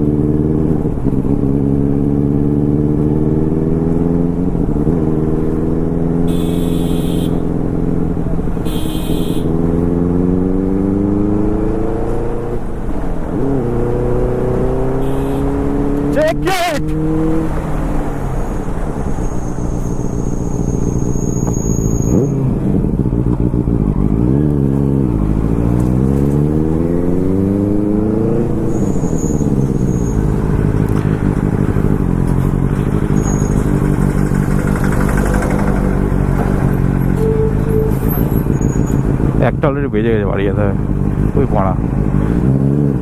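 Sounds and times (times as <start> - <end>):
motorbike engine running: 29.4 - 37.0.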